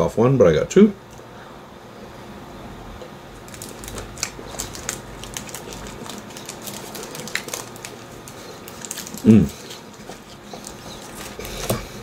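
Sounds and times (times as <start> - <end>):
chocolate bar crunching: 3.4 - 12.0.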